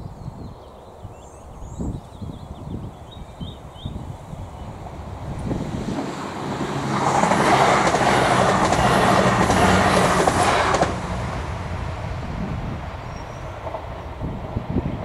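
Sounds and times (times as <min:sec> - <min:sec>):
train passing at speed: 0:03.8 - 0:15.0
wheels clicking over track: 0:05.4 - 0:11.0.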